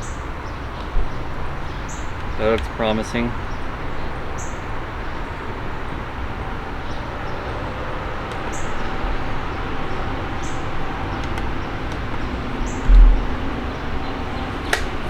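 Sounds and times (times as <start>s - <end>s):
road traffic rumble: 0.0s - 15.0s
loud low thump: 12.8s - 13.6s.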